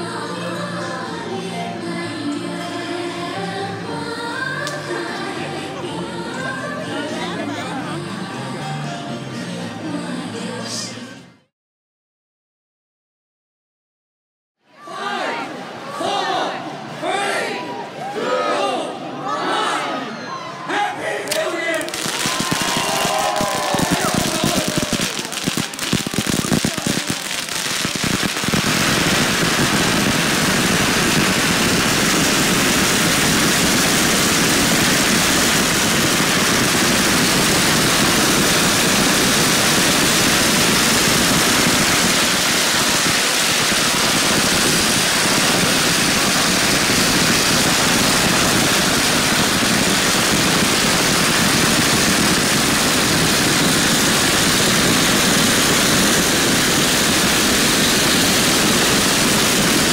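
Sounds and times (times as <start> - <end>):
firecrackers crackling: 21.2 - 59.9.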